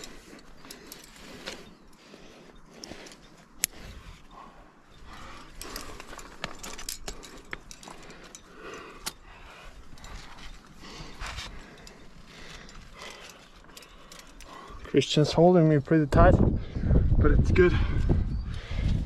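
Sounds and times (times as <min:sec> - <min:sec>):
metal climbing hardware clinking: 0:00.0 - 0:16.2.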